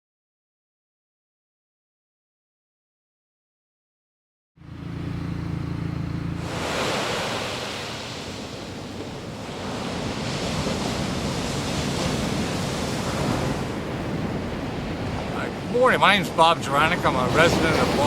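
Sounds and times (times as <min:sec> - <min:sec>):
ocean surf on a beach: 0:06.4 - 0:18.0
wind rumbling on microphone: 0:06.4 - 0:18.0.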